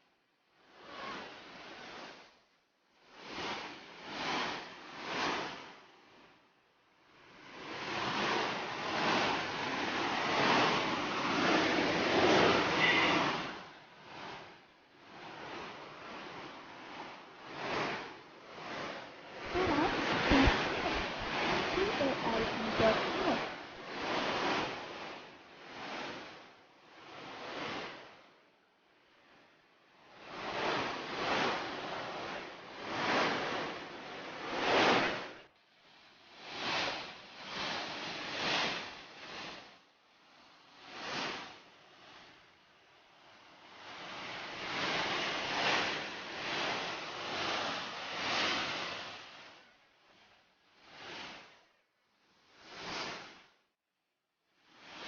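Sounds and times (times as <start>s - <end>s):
water rushing between rocks: 8.0s - 13.7s, 18.9s - 24.9s.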